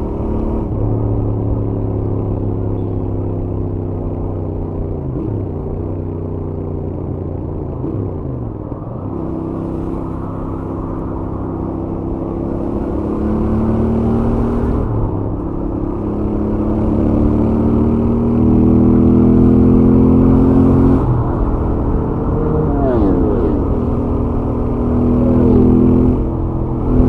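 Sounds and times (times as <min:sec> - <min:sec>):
motorcycle engine accelerating: 0:00.0 - 0:27.0.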